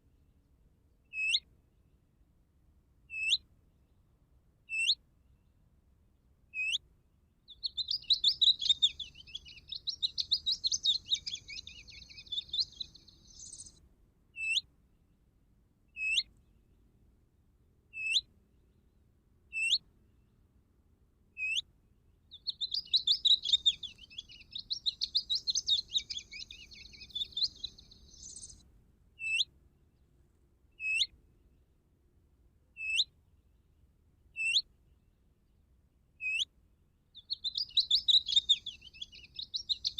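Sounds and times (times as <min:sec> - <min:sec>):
rapid bird twittering song: 0:01.1 - 0:01.4, 0:03.1 - 0:03.4, 0:04.7 - 0:05.4, 0:06.6 - 0:06.8, 0:07.5 - 0:13.8, 0:14.4 - 0:14.7, 0:15.9 - 0:16.7, 0:18.0 - 0:18.8, 0:19.5 - 0:20.3, 0:21.4 - 0:28.6, 0:29.2 - 0:30.1, 0:30.8 - 0:31.2, 0:32.8 - 0:33.1, 0:34.4 - 0:35.1, 0:36.2 - 0:36.5, 0:37.1 - 0:39.9.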